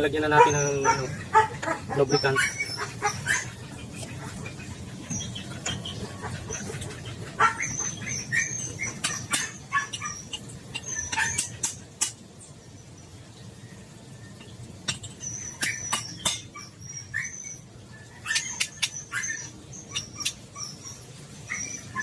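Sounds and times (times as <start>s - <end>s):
birds chirping: 0.0s - 22.0s
sharp clicks and knocks: 14.4s - 16.5s.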